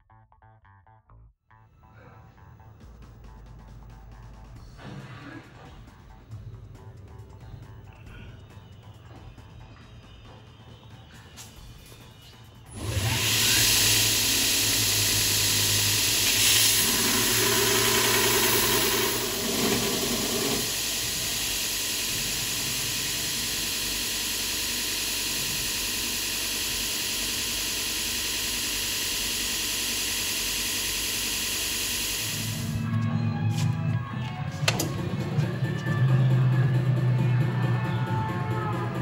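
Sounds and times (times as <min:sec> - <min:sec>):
power tool cutting steel: 0:12.7 - 0:32.8.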